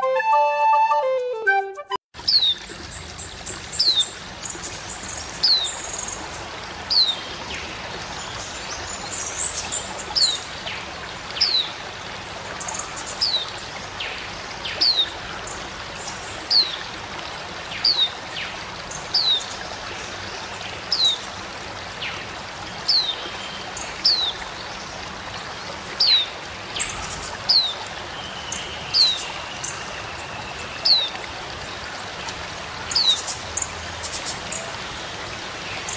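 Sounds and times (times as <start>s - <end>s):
running water: 2.2s - 35.9s.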